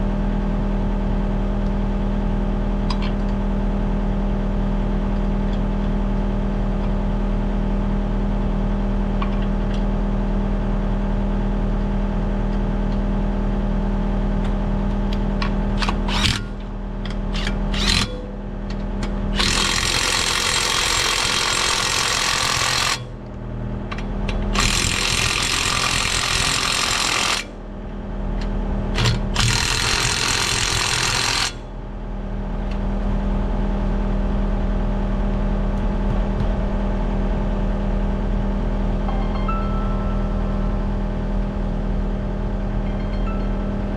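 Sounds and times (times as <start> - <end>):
loud power tool: 16.1 - 16.6, 17.4 - 18.1, 19.3 - 23.1, 24.5 - 27.5, 29.0 - 31.6.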